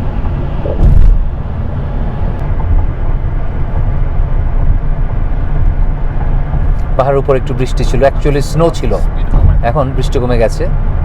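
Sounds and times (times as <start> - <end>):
car engine and tyre rumble: 0.0 - 11.0
thump: 0.6 - 1.3.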